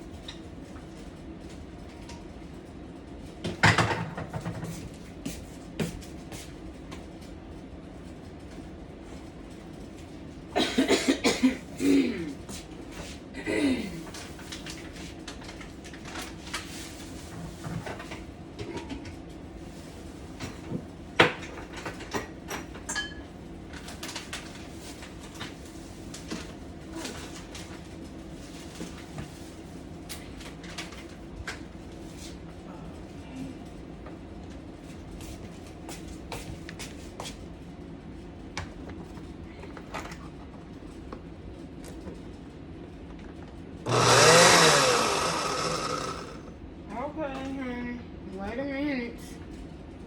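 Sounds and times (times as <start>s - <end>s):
utensils and dishes clattering: 21.4s - 23.3s
electric chopper motor whine: 43.8s - 46.5s.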